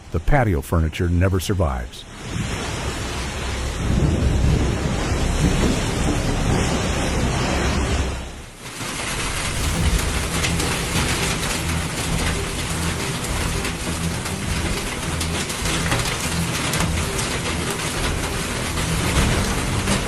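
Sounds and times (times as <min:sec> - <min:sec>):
heavy rain: 0:02.0 - 0:20.0
wind buffeting microphone: 0:09.2 - 0:11.3
small clicks and rattles: 0:10.1 - 0:20.0.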